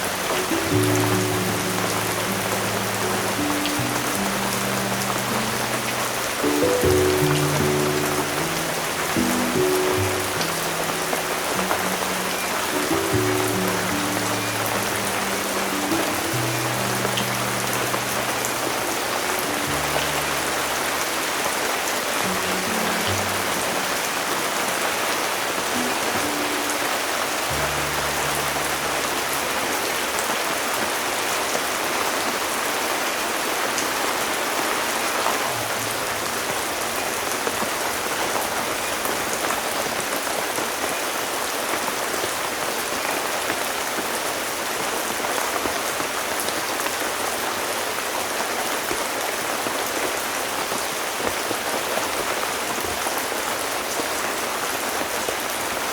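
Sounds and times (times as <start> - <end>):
soft low music notes: 0.0 - 32.2, 34.8 - 40.9
heavy rain falling: 0.0 - 55.9.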